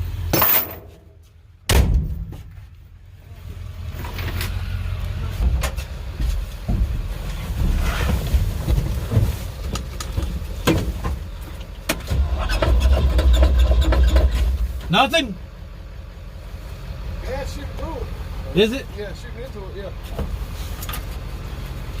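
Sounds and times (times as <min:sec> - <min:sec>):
engine low rumble: 0:00.0 - 0:22.0.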